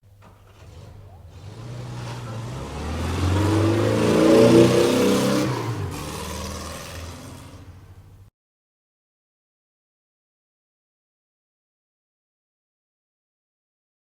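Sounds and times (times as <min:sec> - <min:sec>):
vehicle engine revving: 0:00.2 - 0:08.3.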